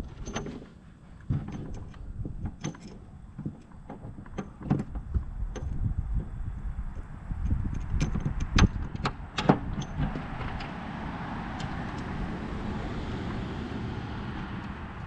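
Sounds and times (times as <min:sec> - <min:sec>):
wrenches clinking: 0:00.0 - 0:00.7.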